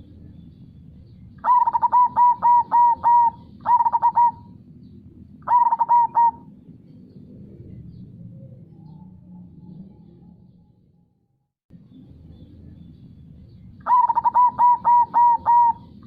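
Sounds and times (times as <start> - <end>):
dove cooing: 1.4 - 4.6, 5.4 - 6.6, 13.8 - 16.0.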